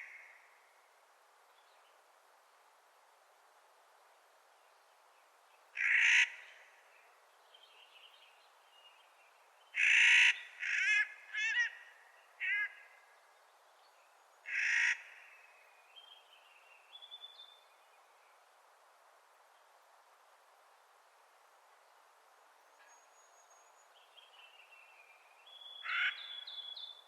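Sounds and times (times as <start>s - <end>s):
bird giving harsh grating calls: 5.8s - 6.3s, 9.8s - 11.7s, 25.8s - 26.2s.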